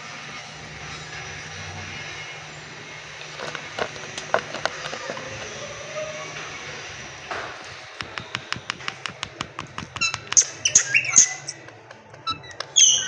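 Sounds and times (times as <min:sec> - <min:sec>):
parakeet clicking: 0:08.0 - 0:13.0
parakeet squawks: 0:09.9 - 0:11.7, 0:12.3 - 0:13.0.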